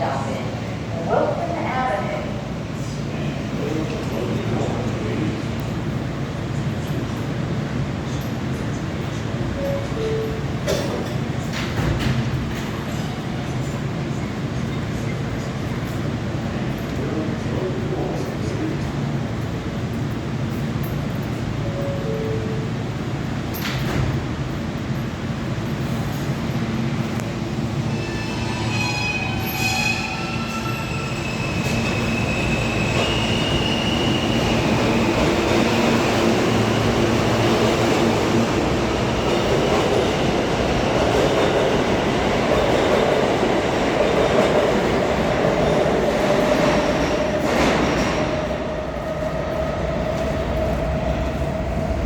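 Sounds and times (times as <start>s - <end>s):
wheels rumbling on rail: 0.0s - 52.0s
high wheel squeal: 27.9s - 35.0s.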